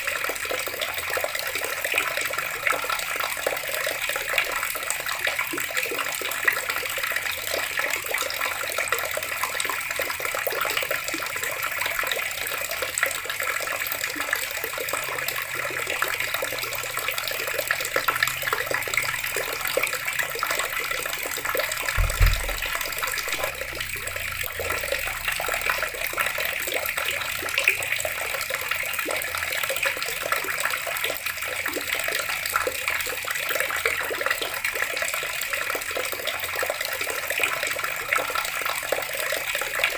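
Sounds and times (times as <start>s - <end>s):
water tap running: 15.5s - 27.6s
low thump: 21.9s - 24.7s.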